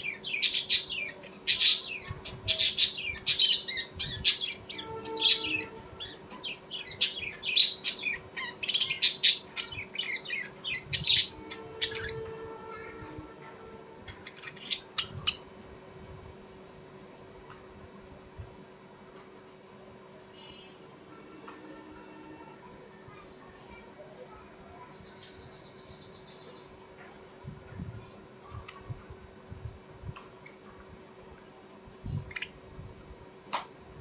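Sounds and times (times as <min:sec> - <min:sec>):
small birds chirping: 0:00.0 - 0:12.3, 0:14.1 - 0:15.6, 0:23.1 - 0:29.2, 0:32.0 - 0:32.8.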